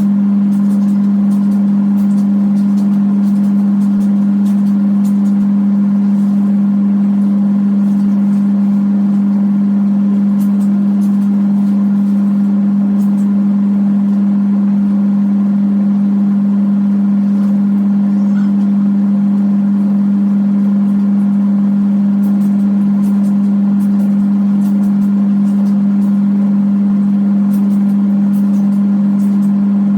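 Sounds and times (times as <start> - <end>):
washing machine motor humming: 0.0 - 29.9.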